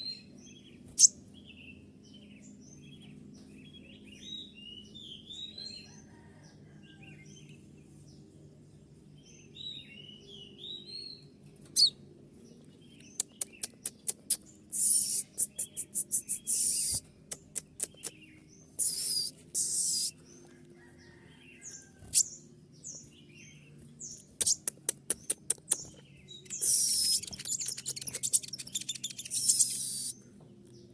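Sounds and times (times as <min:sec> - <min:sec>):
songbird chirping: 0:00.0 - 0:30.9
sharp clicking bird notes: 0:13.0 - 0:20.1, 0:24.1 - 0:30.1
harsh hissing bird call: 0:14.3 - 0:17.0, 0:18.8 - 0:20.2, 0:26.5 - 0:28.4, 0:29.4 - 0:30.2.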